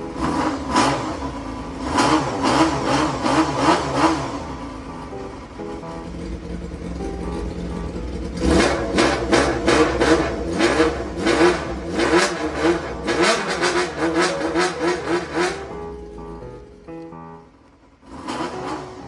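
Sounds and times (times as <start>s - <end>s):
motorcycle engine revving: 0.0s - 16.7s, 17.9s - 19.0s.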